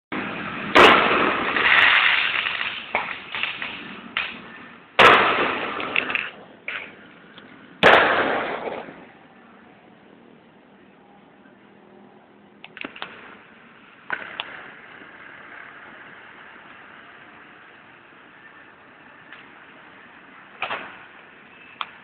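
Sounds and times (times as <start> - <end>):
crackling hiss: 0.2 - 9.1
fireworks banging: 0.2 - 9.1, 12.8 - 16.5
small firework pops and cracks: 0.8 - 4.4, 5.0 - 7.0, 7.8 - 9.0, 12.7 - 13.3.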